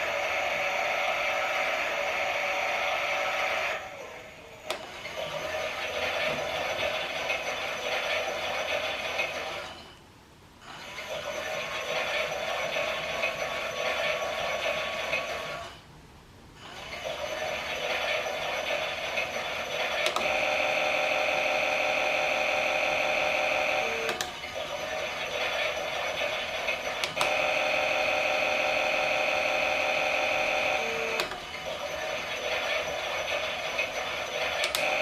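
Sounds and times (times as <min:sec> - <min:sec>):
toy washing machine motor whirring: 0:00.0 - 0:09.8, 0:10.6 - 0:15.8, 0:16.6 - 0:35.0.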